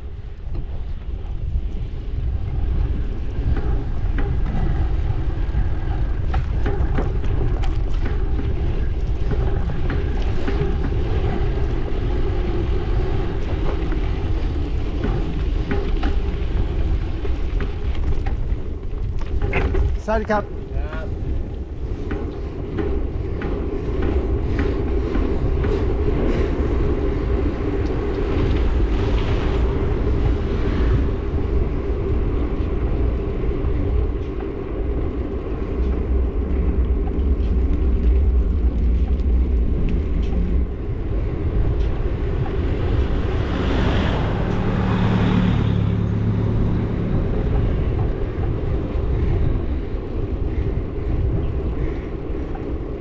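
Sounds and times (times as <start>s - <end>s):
low road rumble: 0.0s - 53.0s
vehicle passing close by: 42.6s - 48.6s.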